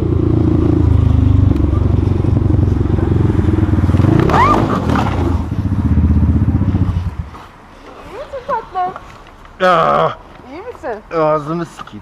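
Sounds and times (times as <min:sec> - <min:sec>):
motorcycle engine running: 0:00.0 - 0:07.4
short rising vocal cry: 0:04.2 - 0:04.8.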